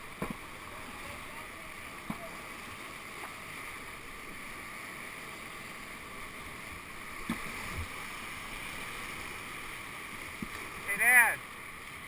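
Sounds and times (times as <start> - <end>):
rushing whitewater: 0.0 - 12.0.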